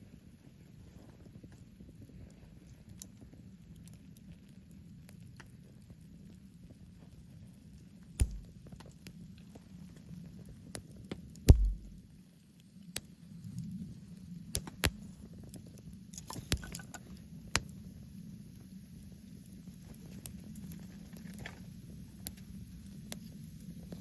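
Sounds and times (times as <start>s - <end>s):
campfire crackling and popping: 1.6s - 24.0s
low steady rumble: 11.5s - 12.0s.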